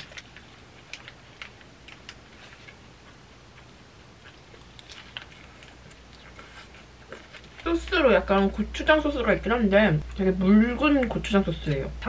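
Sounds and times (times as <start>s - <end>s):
chewing food: 0.0s - 7.7s.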